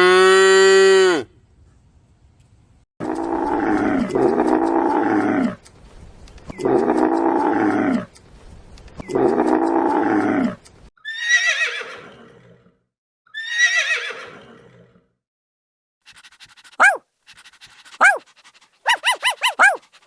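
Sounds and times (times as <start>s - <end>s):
horse whinnying: 11.1s - 12.0s, 13.4s - 14.4s, 16.8s - 17.0s, 18.0s - 18.2s, 18.9s - 19.8s.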